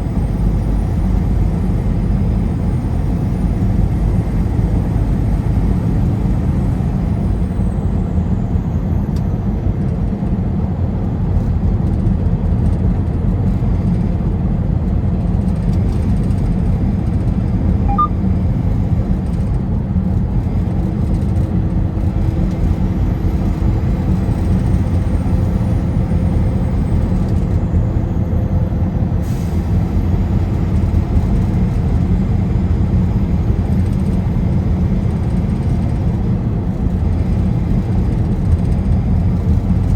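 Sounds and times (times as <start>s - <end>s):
car road noise: 0.0s - 39.9s.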